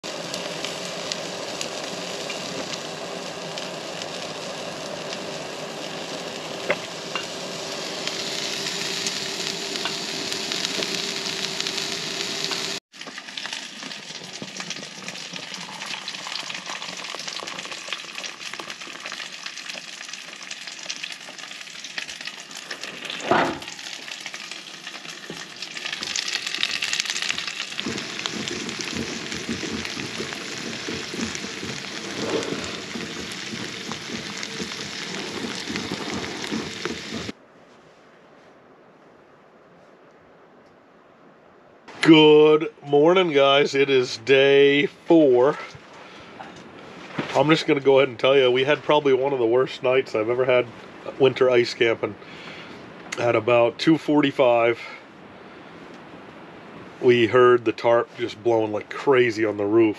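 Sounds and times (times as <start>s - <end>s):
food sizzling in a skillet: 0.0s - 37.4s.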